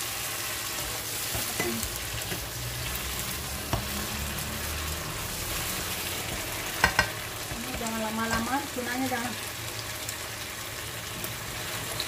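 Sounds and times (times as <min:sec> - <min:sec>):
fish frying in oil: 0:00.0 - 0:12.0
utensil clicking against pan: 0:06.8 - 0:08.5.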